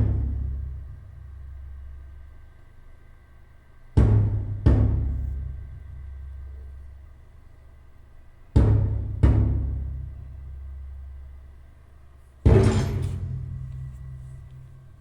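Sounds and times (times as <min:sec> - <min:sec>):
deep booming drum strikes: 0:04.0 - 0:05.7, 0:08.6 - 0:10.3, 0:12.4 - 0:14.8.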